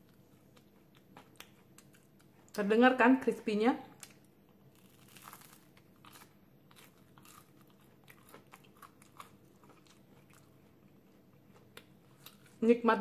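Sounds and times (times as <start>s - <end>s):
crunching of crispy fried food: 3.9s - 12.7s.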